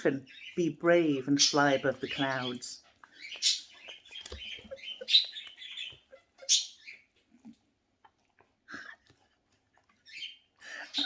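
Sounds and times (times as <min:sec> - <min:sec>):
cockatiels chirping: 0:01.2 - 0:07.2, 0:10.0 - 0:11.0
small clicks and rustles: 0:03.0 - 0:06.0.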